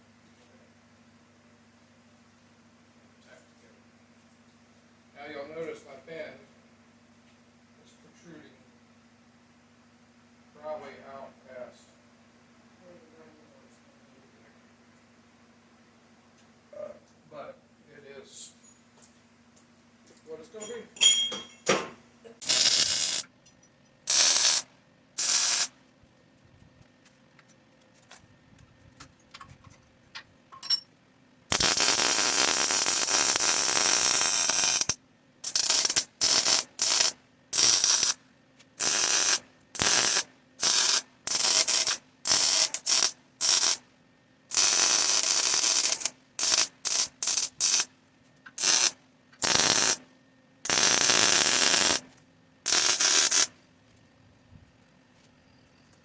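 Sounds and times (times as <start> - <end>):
welder bursts: 22.4 - 23.3, 24.1 - 25.7, 31.5 - 38.2, 38.8 - 43.8, 44.5 - 47.9, 48.5 - 53.6.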